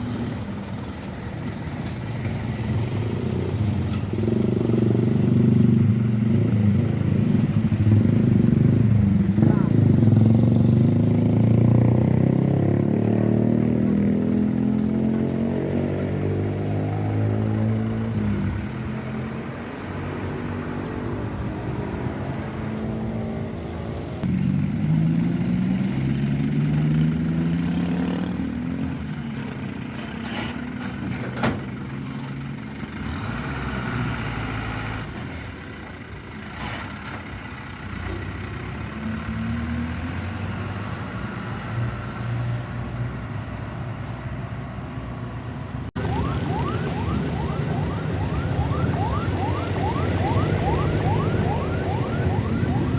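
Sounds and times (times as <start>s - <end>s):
heavy truck engines: 0.0s - 52.9s.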